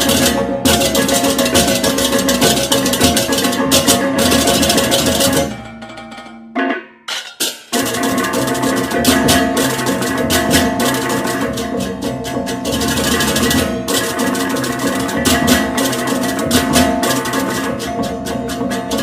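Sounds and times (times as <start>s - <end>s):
ringing metal gong: 0.0s - 6.8s, 7.7s - 19.0s
drumming: 0.0s - 19.0s
gamelan music: 0.0s - 19.0s
cymbal-like strikes: 7.2s - 19.0s.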